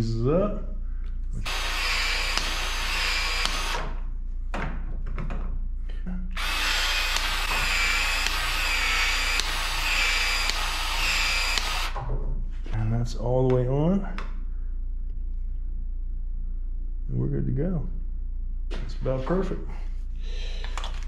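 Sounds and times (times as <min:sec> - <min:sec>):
pipe expansion tool motor: 0:01.4 - 0:04.0, 0:06.4 - 0:12.0.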